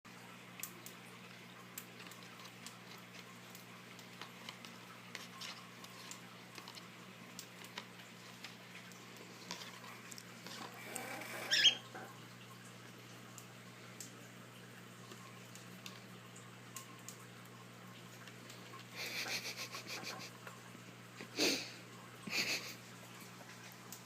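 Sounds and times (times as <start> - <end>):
cockatiel clicks and scratches: 1.7 - 11.8
cockatiel high call: 11.4 - 11.8.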